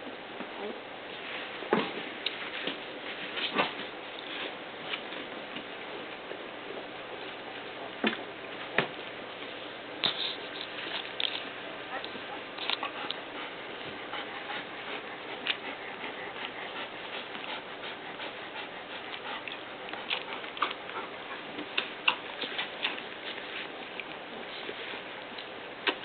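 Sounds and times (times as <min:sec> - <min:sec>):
puppies moving with light clicks: 0:02.2 - 0:06.2, 0:09.4 - 0:26.0.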